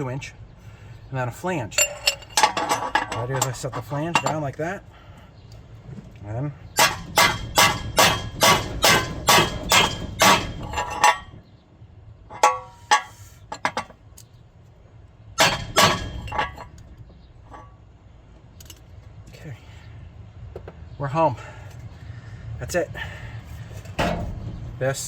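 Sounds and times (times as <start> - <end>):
hammer striking metal pipe: 6.8 - 11.3, 12.3 - 13.1, 15.4 - 16.7.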